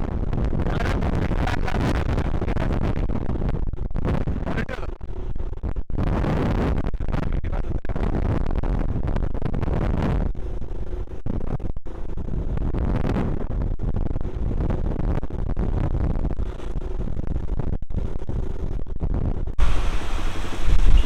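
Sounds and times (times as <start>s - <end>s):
wind buffeting microphone: 19.3s - 21.0s.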